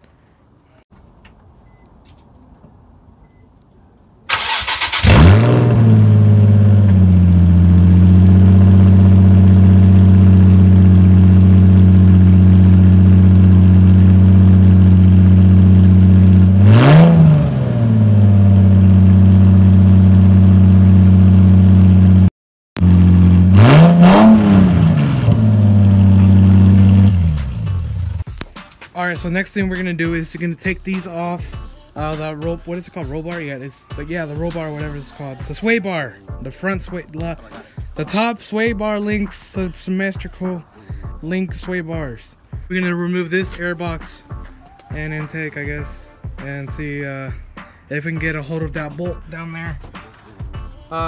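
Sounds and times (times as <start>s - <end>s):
car engine cranking: 4.3s - 21.8s, 22.8s - 28.5s
engine revving: 4.3s - 28.3s
car engine idling: 4.3s - 28.4s.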